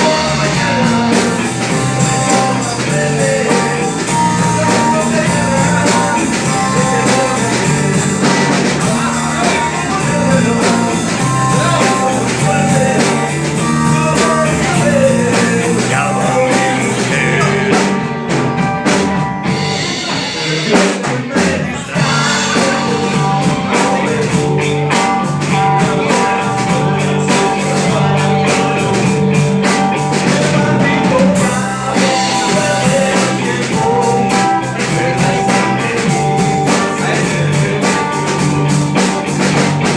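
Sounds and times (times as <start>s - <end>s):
harmonica: 0.0s - 18.1s
rhythm and blues band playing: 0.0s - 39.9s.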